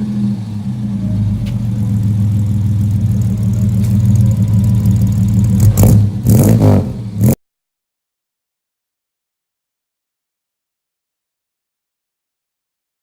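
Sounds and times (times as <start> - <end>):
six-cylinder engine idling and revving: 0.0 - 7.4.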